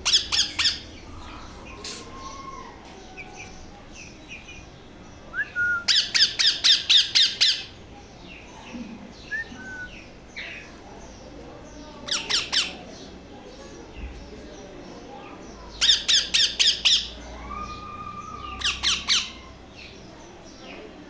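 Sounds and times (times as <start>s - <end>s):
parrot chicks squawking: 0.0s - 4.6s, 5.9s - 7.8s, 12.0s - 13.1s, 15.8s - 20.0s.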